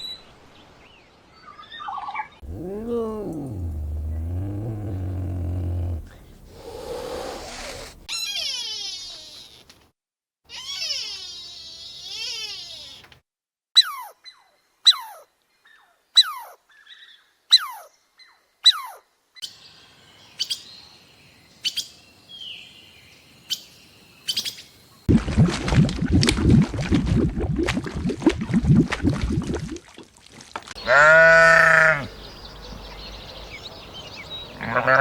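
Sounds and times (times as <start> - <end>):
bird calling: 2.5 - 9.6.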